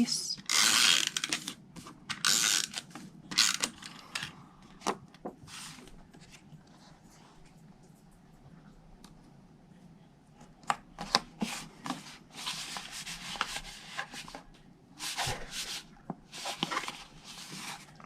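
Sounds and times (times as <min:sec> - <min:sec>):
paper rubbing and rustling: 0:11.0 - 0:18.0.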